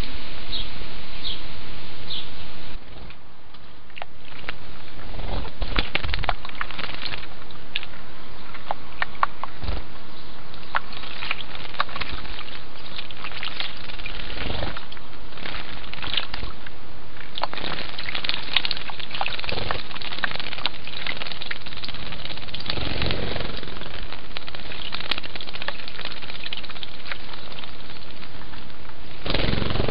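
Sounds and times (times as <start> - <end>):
steady background hiss: 0.0 - 29.9
wing flutters: 4.2 - 7.3, 10.7 - 16.5, 17.4 - 29.9
birds splashing in water: 5.6 - 7.9, 10.6 - 29.9.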